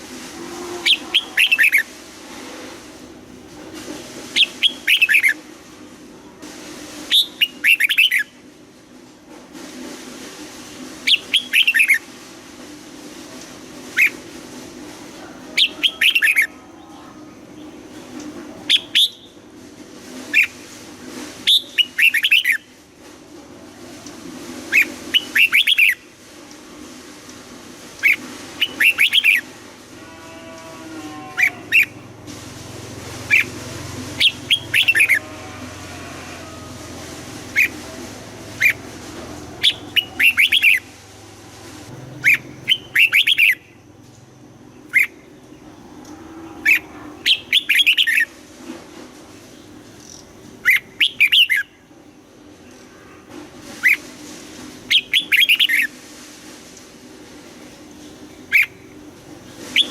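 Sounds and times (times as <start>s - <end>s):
bulbuls singing: 34.2s - 35.3s, 37.4s - 41.0s, 41.9s - 43.7s.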